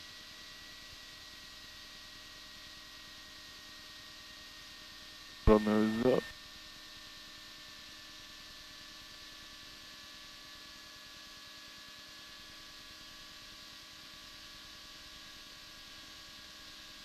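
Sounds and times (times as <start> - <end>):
low electrical hum: 0.0 - 17.0
faint steady hiss: 5.5 - 6.2.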